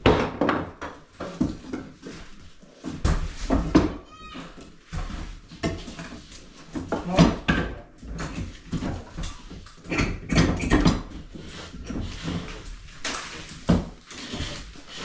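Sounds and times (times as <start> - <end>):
irregular knocks and clatter: 4.7 - 15.0.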